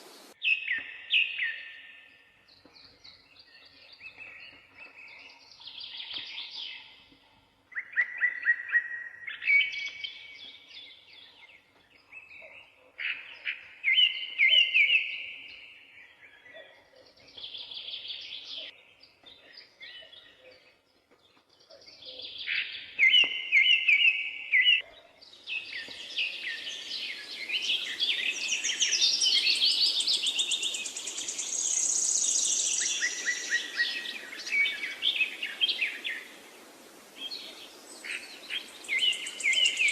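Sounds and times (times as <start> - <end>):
steady rushing hiss: 0.0 - 0.4, 29.9 - 39.9
songbirds singing: 0.0 - 39.9.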